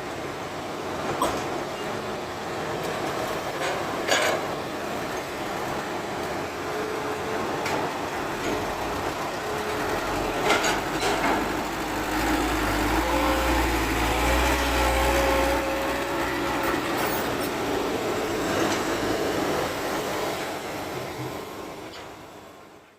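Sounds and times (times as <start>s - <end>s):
excavator diesel engine rumble: 0.4s - 22.9s
hydraulic whine: 8.2s - 22.2s.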